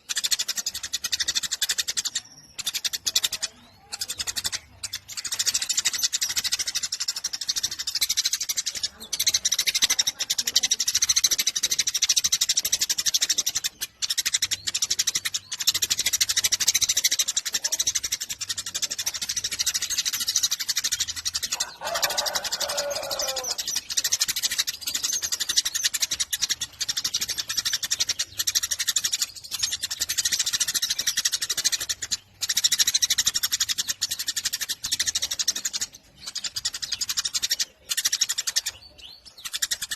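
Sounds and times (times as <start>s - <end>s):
sparrow chattering: 0.0s - 39.9s
lower falling bird call: 21.6s - 23.6s.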